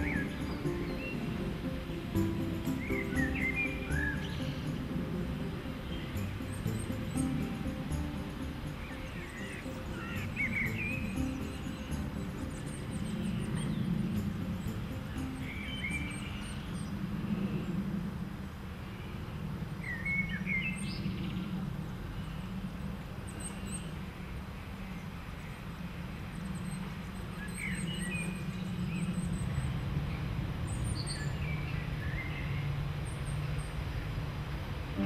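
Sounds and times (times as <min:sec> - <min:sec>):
birds chirping: 0:00.0 - 0:17.8
thin high bird calls: 0:05.6 - 0:17.0.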